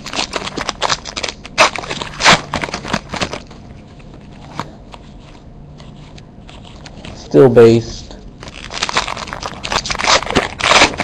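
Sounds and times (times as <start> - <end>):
foil wrapper crinkling: 0.0 - 4.2, 8.4 - 11.0
cards being handled: 0.0 - 7.8.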